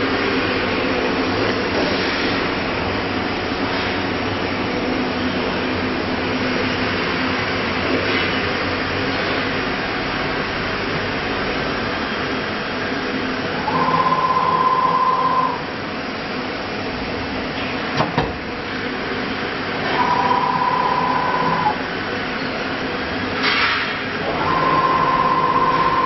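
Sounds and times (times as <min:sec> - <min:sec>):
router mechanical hum: 0:00.0 - 0:26.0
high whine: 0:13.4 - 0:15.9, 0:19.8 - 0:21.9, 0:24.2 - 0:26.0.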